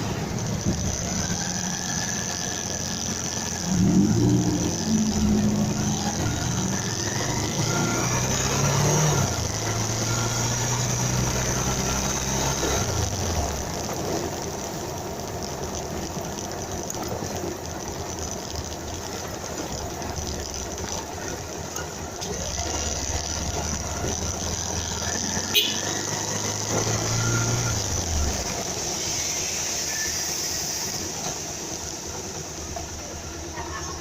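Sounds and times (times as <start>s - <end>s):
motorcycle engine idling: 0.0s - 7.6s, 12.8s - 26.0s.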